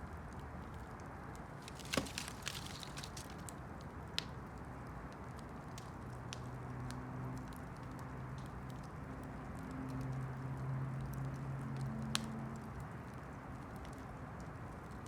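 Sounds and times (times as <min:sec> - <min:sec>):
campfire crackling and popping: 0:01.6 - 0:09.3.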